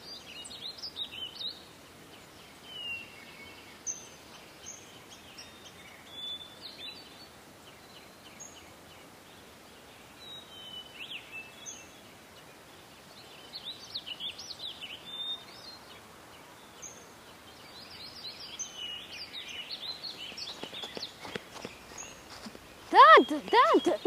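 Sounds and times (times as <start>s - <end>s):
steady background hiss: 0.0s - 24.0s
birds chirping and singing: 16.6s - 24.0s.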